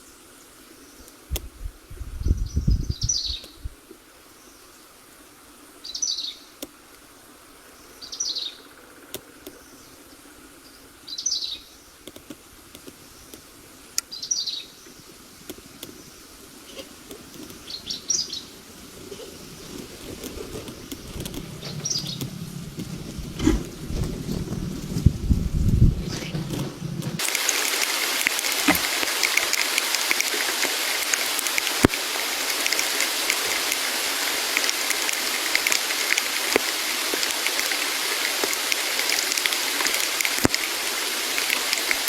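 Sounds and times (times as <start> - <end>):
small bird chirping: 2.2 - 3.7
low rumbling noise: 19.4 - 27.3.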